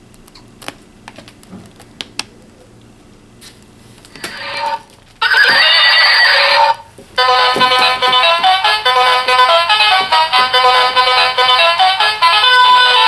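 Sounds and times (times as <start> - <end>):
electronic horse whinny effect: 4.3 - 6.8.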